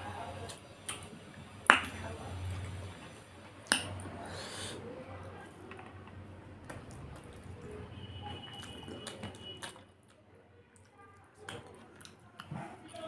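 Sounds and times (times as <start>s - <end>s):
person chewing with mouth smacks: 6.7s - 7.7s, 8.4s - 10.2s, 10.8s - 13.0s.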